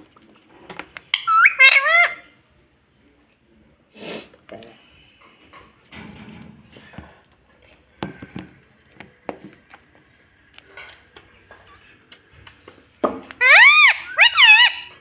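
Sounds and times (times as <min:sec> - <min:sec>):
parrot call: 0:01.2 - 0:02.3, 0:13.4 - 0:15.0.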